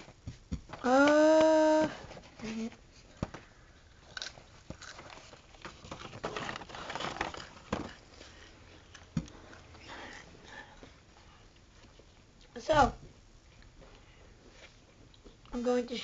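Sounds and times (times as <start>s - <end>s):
crunching potato chips: 3.8s - 10.2s.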